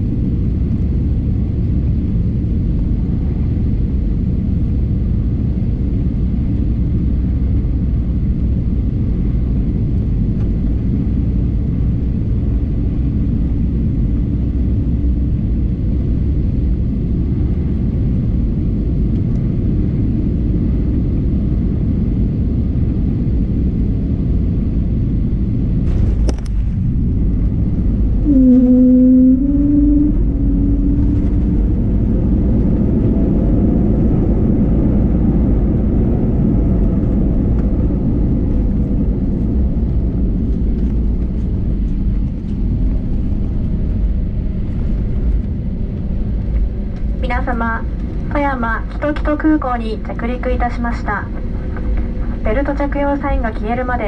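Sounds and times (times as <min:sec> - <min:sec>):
airliner cabin rumble: 0:00.0 - 0:54.0
slightly rising hum: 0:26.8 - 0:33.5.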